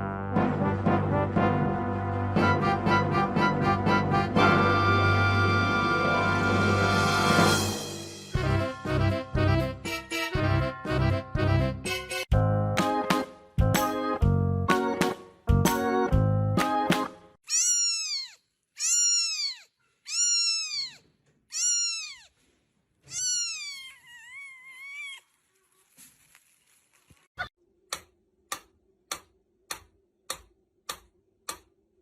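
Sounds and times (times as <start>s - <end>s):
cat meowing: 17.5s - 22.4s, 23.0s - 25.3s.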